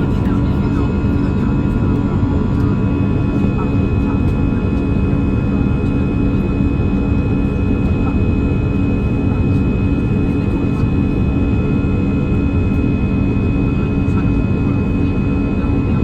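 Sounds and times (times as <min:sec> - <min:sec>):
aircraft cabin engine rumble: 0:00.0 - 0:16.0.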